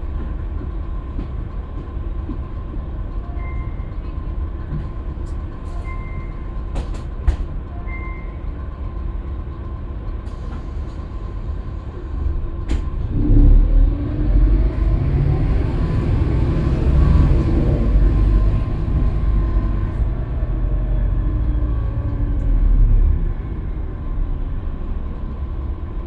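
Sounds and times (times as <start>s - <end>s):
bus engine rumbling: 0.0s - 26.0s.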